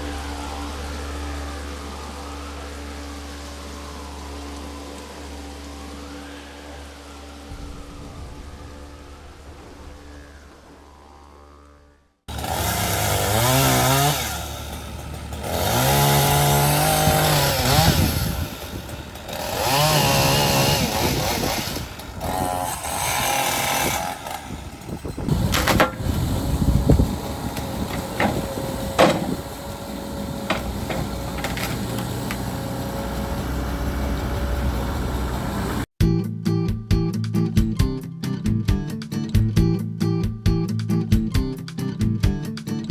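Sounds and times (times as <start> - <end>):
chainsaw revving: 12.3 - 35.9
sharp cracks and knocks: 25.4 - 26.2, 27.5 - 29.6, 30.4 - 32.5.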